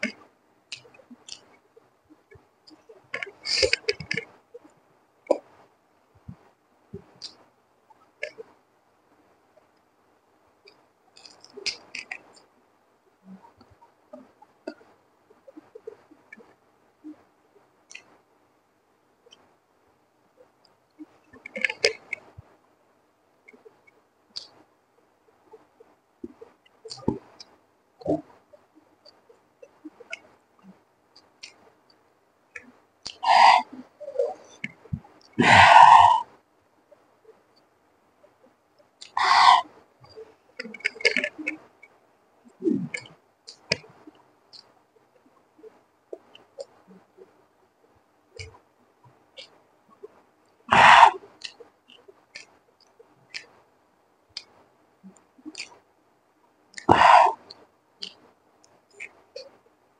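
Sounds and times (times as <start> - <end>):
wet chewing and mouth clicks: 54.4 - 55.8
wet mouth clicks while chewing: 55.4 - 55.8.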